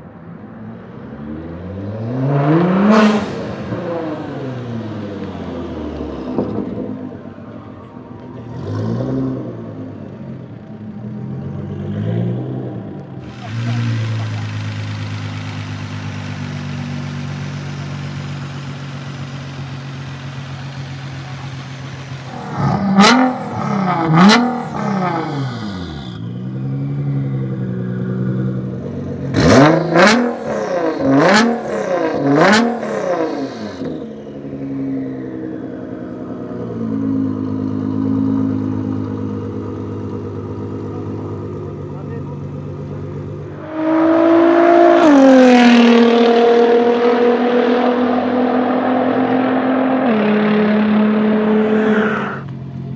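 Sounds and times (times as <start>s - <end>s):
engine revving with exhaust crack: 11.8s - 26.7s, 29.2s - 34.1s
car engine idling: 13.0s - 26.5s, 35.5s - 43.6s.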